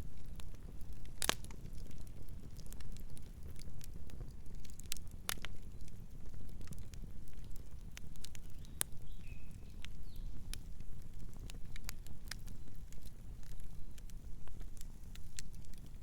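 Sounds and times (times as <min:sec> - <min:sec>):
campfire crackling and popping: 0:00.0 - 0:16.0
low rumble of burning: 0:00.0 - 0:16.0
faint bird chirps: 0:08.5 - 0:10.4.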